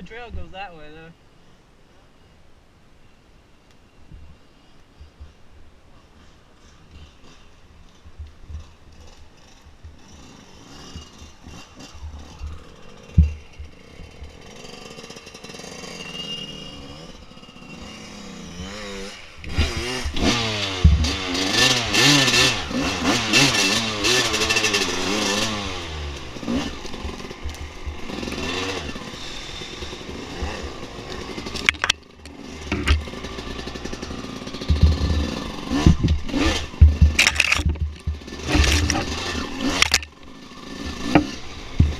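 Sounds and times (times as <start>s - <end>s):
knocks and clatter over rough ground: 5.0s - 16.6s, 18.6s - 41.9s
dirt bike engine revving: 6.9s - 41.9s.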